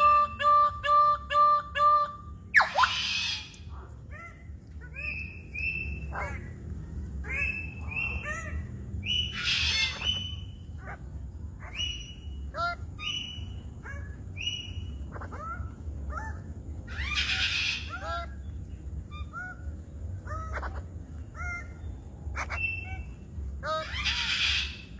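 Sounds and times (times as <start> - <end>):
bird calling: 0.0 - 24.9
steady low hum: 0.0 - 24.9.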